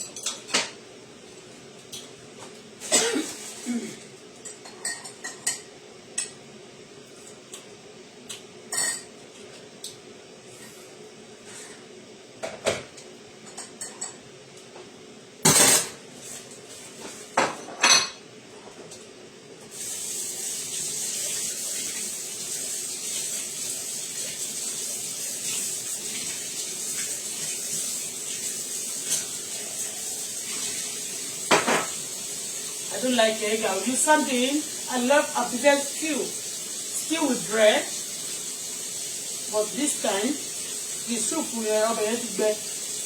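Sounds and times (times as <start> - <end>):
dishes and cutlery clinking: 0.0 - 0.8, 4.4 - 6.4, 13.4 - 14.2, 15.4 - 16.0, 17.4 - 18.2
food sizzling in a pan: 2.8 - 5.7, 19.7 - 43.0.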